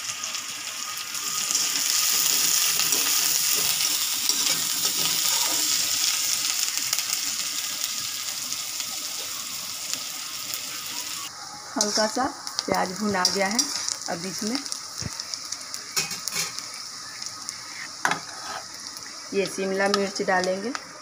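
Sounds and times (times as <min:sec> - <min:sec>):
onion sizzling in hot oil: 0:00.0 - 0:21.0
metal spatula scraping: 0:02.9 - 0:05.8, 0:13.2 - 0:14.0, 0:18.0 - 0:18.8.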